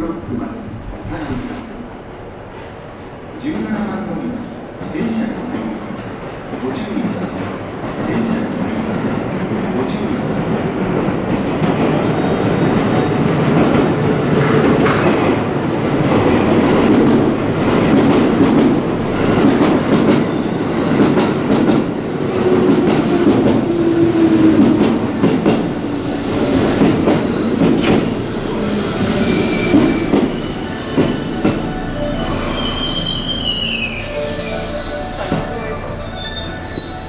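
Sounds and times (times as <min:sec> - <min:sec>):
train rolling rumble: 0:04.3 - 0:37.0
brake and wheel squeal: 0:27.8 - 0:30.1, 0:32.3 - 0:37.0.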